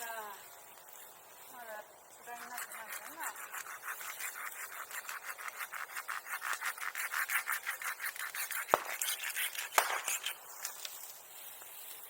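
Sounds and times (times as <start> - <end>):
hand saw cutting wood: 2.3 - 10.4
sharp cracks: 6.8 - 11.2.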